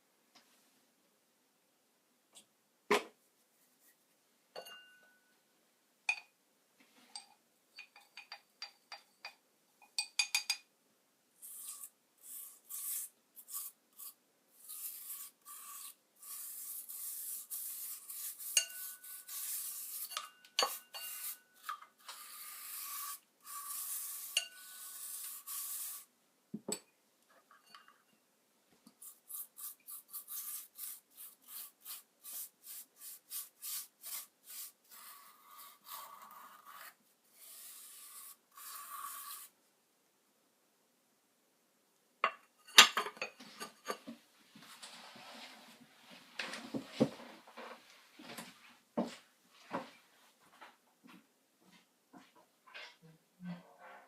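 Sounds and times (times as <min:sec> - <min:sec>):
rasping rubbing strokes: 0:11.4 - 0:26.1, 0:29.0 - 0:39.6.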